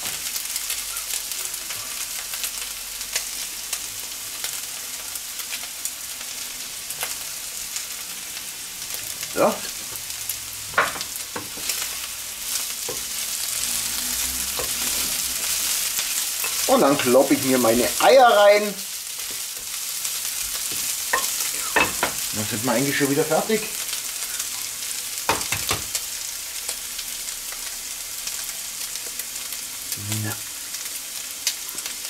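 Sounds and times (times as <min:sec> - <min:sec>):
food sizzling in a frying pan: 0:00.0 - 0:32.0.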